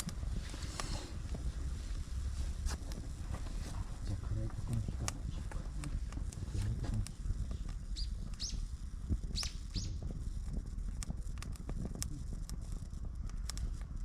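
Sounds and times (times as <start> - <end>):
campfire crackling and popping: 0.0 - 14.0
low steady rumble: 0.0 - 14.0
small birds chirping: 7.7 - 10.0.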